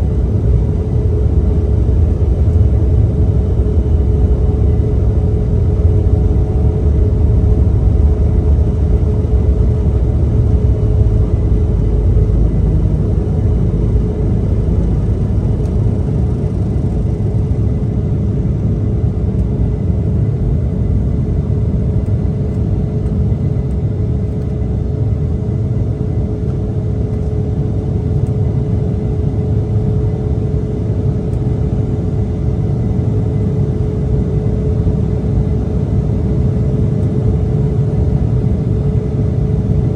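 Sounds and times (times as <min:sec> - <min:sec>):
steady cabin hum: 0:00.0 - 0:27.3
jet engine rumble and airflow: 0:00.0 - 0:39.9.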